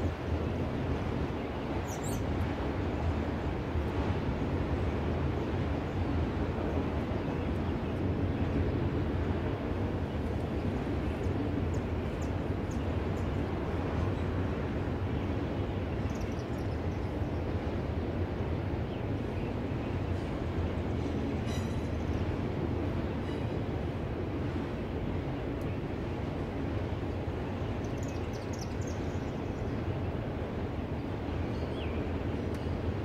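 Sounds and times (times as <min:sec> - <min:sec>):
freight train rumbling on rails: 0:00.0 - 0:33.0
faint high clicks and squeaks: 0:21.4 - 0:21.9.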